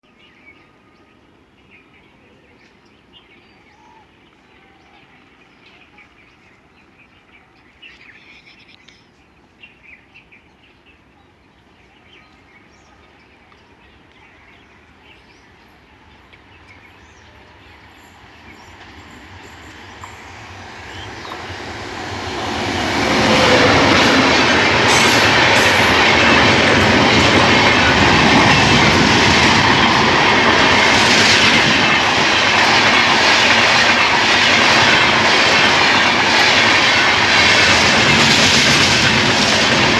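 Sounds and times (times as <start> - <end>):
passenger train passing: 14.9 - 39.9
train wheels rumbling and rattling: 17.8 - 39.9.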